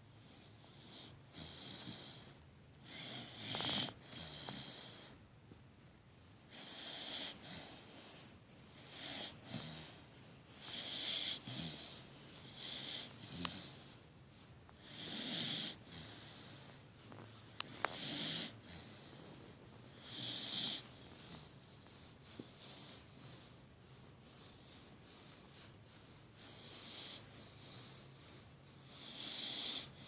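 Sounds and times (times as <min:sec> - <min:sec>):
puppy snoring: 0:00.2 - 0:05.2, 0:06.5 - 0:14.1, 0:14.7 - 0:30.0.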